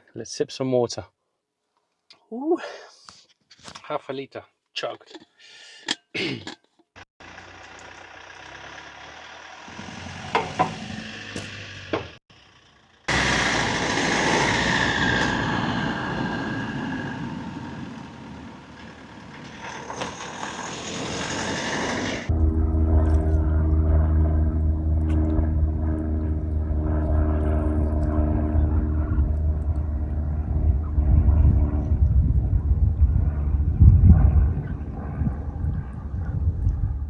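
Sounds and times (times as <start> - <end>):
road noise: 7.2 - 22.9
vehicle engine hum: 7.2 - 36.9
low-pitched engine drone: 7.2 - 37.0.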